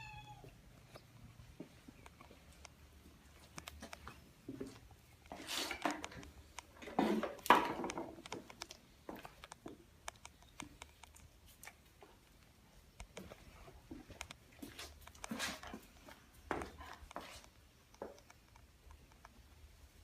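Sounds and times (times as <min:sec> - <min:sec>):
small clicks and taps: 0:03.4 - 0:15.4, 0:16.0 - 0:19.5.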